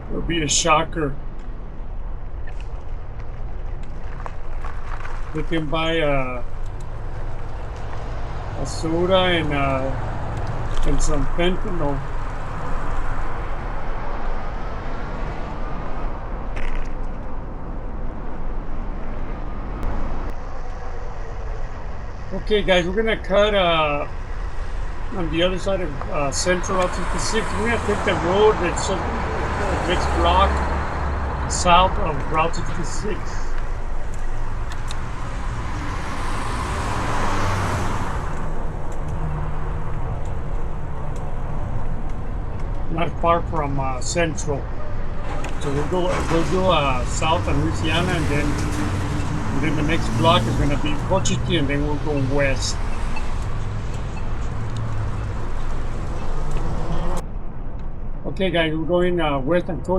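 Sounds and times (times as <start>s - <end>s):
steady low rumble: 0.0s - 36.2s, 38.1s - 59.9s
traffic: 0.0s - 59.9s
car passing by: 18.2s - 57.2s
e-bike rumble and hiss: 22.3s - 24.1s, 25.1s - 30.6s, 31.5s - 33.5s, 45.6s - 52.8s.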